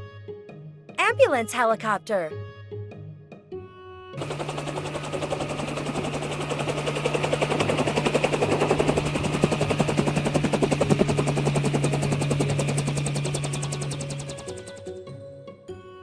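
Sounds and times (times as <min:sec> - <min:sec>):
helicopter rotor blades chopping: 0:04.2 - 0:14.8.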